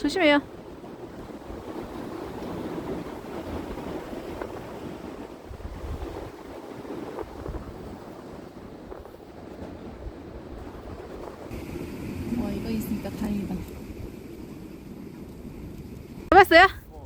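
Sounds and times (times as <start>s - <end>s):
sea waves on rocky shore: 0.0s - 16.7s
wind buffeting microphone: 0.0s - 17.0s.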